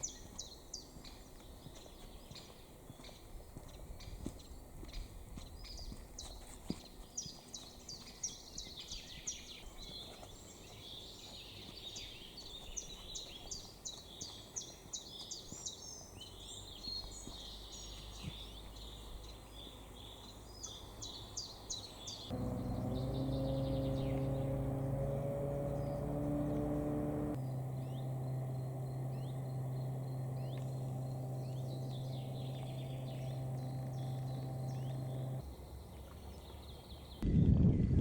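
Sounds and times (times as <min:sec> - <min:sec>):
low hum with held tones: 0:22.3 - 0:35.6.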